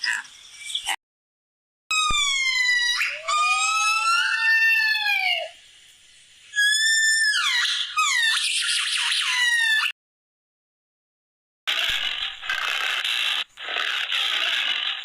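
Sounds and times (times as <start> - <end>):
high-pitched animal cries: 1.9 - 5.6, 6.5 - 10.0.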